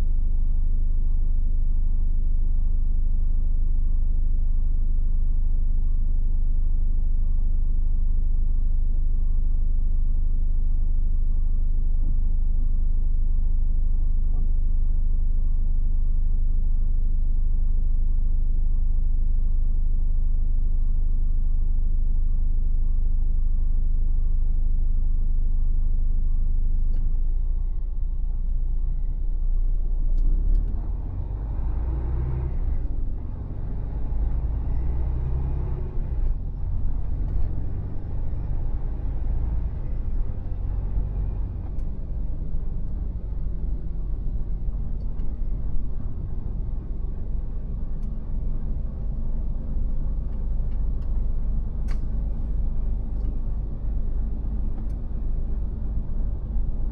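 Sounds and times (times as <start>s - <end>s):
truck diesel engine droning: 30.2s - 56.9s.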